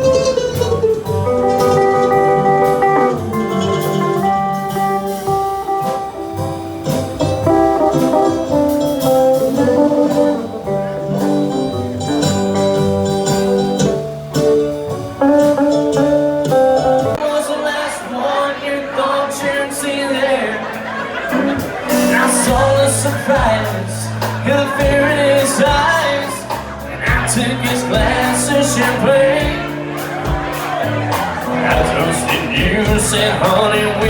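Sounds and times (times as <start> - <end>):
bass line: 0.0 - 17.2, 21.2 - 34.0
crowd noise: 0.0 - 34.0
guitar: 0.0 - 34.0
live band playing: 0.0 - 34.0.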